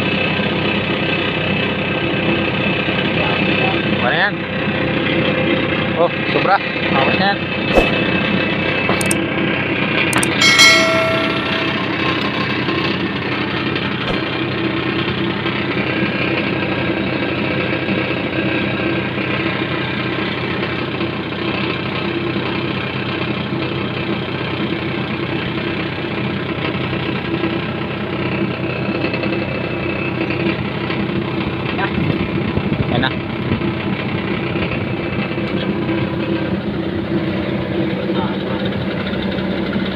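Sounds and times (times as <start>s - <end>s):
metallic clink: 9.0s - 9.2s, 10.2s - 12.4s, 14.1s - 14.3s.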